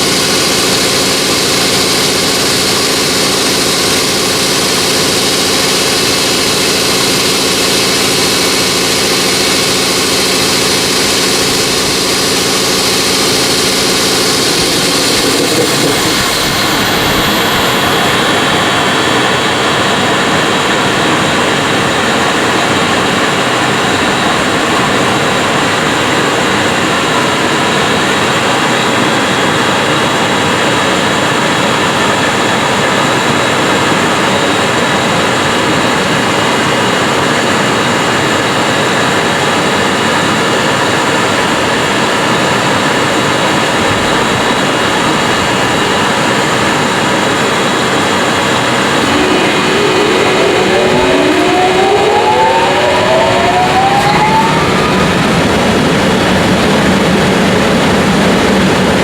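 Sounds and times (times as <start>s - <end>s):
locomotive cooling blowers rushing: 0.0s - 59.0s
rising whines: 0.1s - 25.4s, 47.4s - 57.2s.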